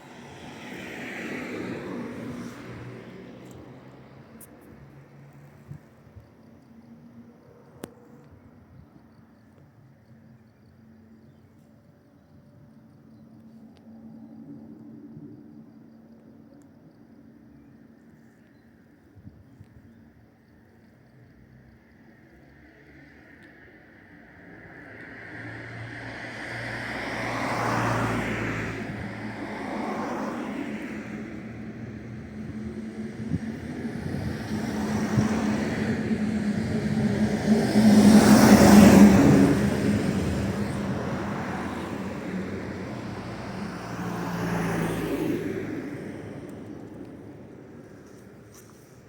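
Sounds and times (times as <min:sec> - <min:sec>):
cars passing by: 0:00.0 - 0:07.9, 0:21.6 - 0:49.0
faint high ticks: 0:07.7 - 0:08.4.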